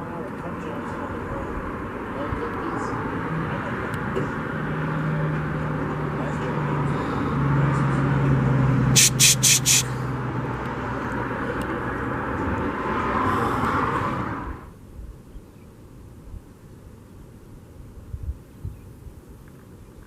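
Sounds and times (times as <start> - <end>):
vehicle engine hum: 0.0 - 14.8
short sharp noise bursts: 8.9 - 10.0.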